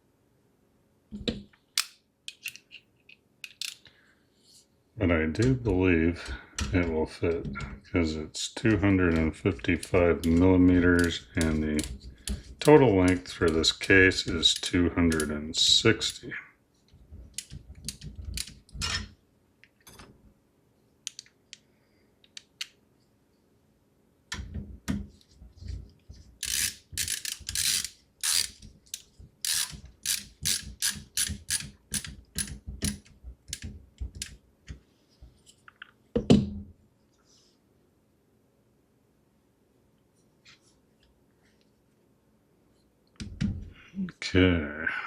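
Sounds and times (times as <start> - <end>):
ratchet-like clicks: 26.4 - 34.3.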